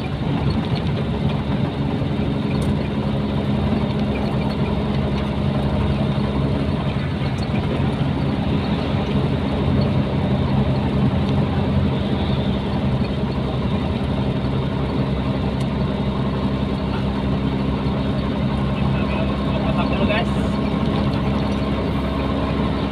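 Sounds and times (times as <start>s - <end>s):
road noise: 0.0s - 22.9s
truck diesel engine running: 0.0s - 22.9s.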